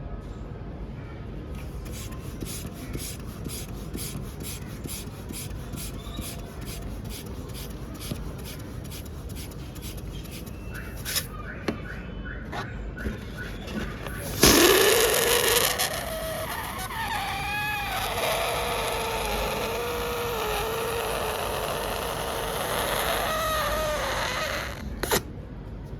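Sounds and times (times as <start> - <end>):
rhythmic scratchy rubbing: 1.6 - 11.3, 13.1 - 23.8
short squeaks: 1.6 - 11.9, 12.5 - 25.3.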